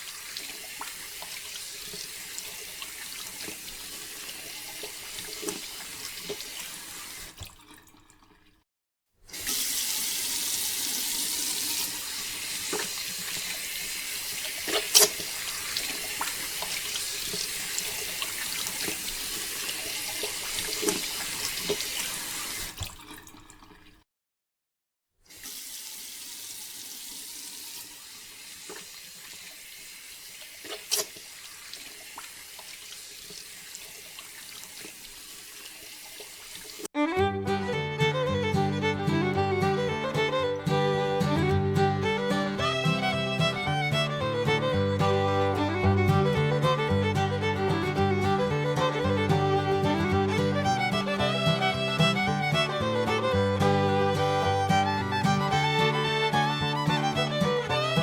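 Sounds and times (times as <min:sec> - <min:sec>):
water running and pouring: 0:00.0 - 0:08.6, 0:09.3 - 0:24.0, 0:25.3 - 0:36.9, 0:42.1 - 0:58.0
sharp knocks or splashes: 0:14.6 - 0:19.1.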